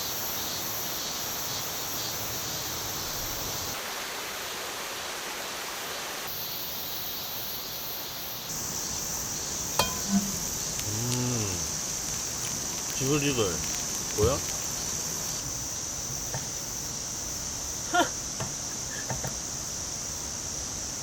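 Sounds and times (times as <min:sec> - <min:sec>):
hissing rush of noise: 0:02.9 - 0:21.0
high even tone: 0:09.8 - 0:11.1.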